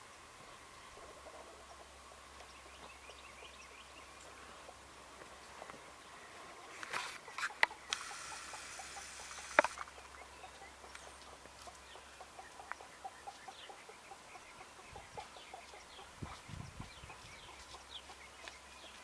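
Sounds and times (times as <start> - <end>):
fowl clucking: 7.0 - 16.4.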